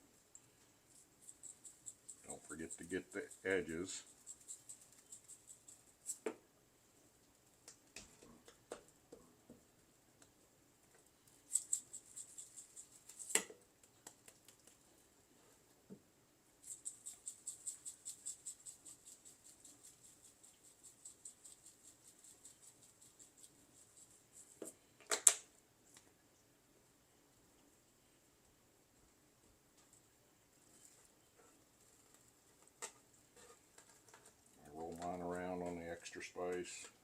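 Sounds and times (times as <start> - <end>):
seasoning rattling in a shaker: 0.9 - 6.2, 11.3 - 13.4, 16.6 - 24.6.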